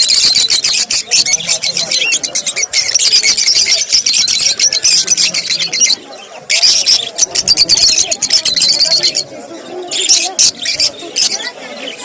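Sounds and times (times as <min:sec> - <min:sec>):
parrots chattering: 0:00.0 - 0:12.0.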